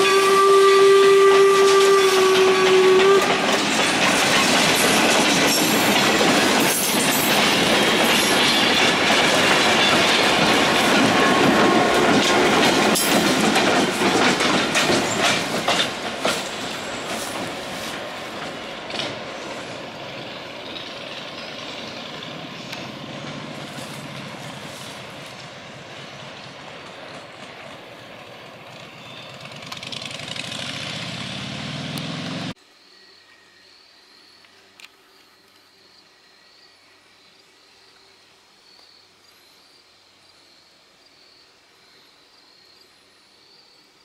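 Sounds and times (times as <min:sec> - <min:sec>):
train wheels clicking over rail joints: 0:01.0 - 0:32.5.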